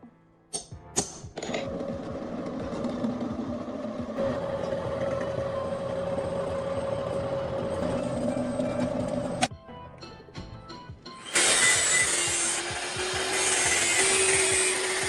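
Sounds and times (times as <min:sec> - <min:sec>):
power tool motor whine: 0:01.6 - 0:09.5, 0:11.2 - 0:15.0.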